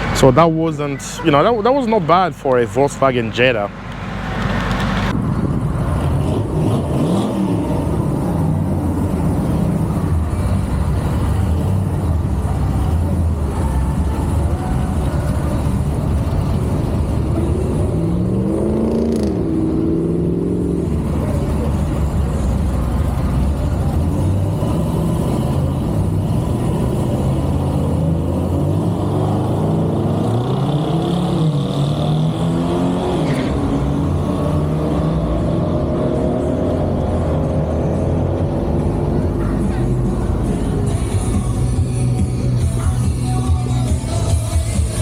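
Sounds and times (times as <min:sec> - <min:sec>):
car engine accelerating hard: 0:00.0 - 0:43.1.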